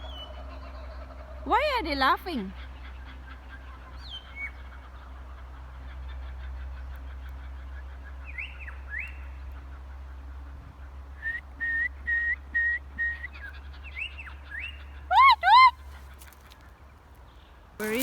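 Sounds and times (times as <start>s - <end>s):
wild birds whistling calls: 0.0s - 18.0s.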